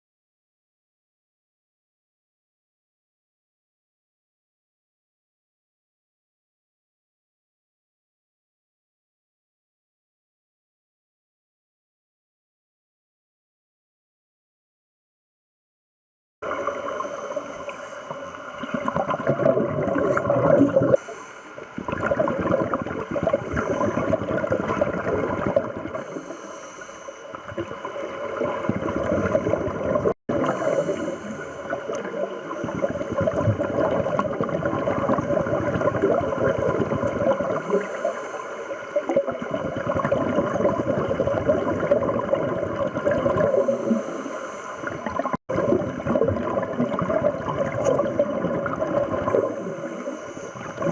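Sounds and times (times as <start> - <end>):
exhaled bubbles gurgling: 16.4 - 50.9
divers breathing through regulators: 20.9 - 21.7, 23.4 - 24.2, 26.0 - 27.4, 30.4 - 33.4, 37.6 - 39.1, 43.5 - 45.1, 49.4 - 50.9.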